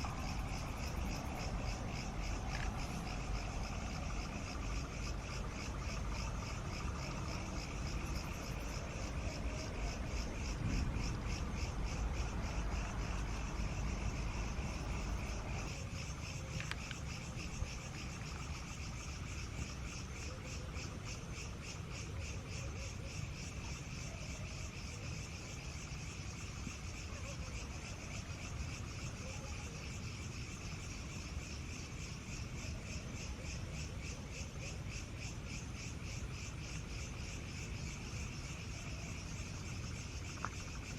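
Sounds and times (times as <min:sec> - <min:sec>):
low rumble: 0:00.0 - 0:16.2
crickets chirping: 0:00.0 - 0:40.9.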